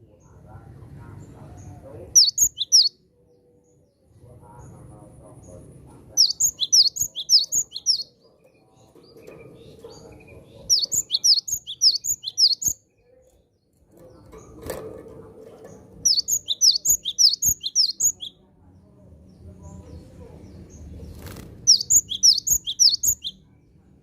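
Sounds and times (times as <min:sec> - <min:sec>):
low background murmur: 0:00.0 - 0:24.0
bird singing sharp high notes: 0:02.2 - 0:02.9, 0:06.2 - 0:08.1, 0:10.7 - 0:12.8, 0:16.1 - 0:18.4, 0:21.7 - 0:23.4.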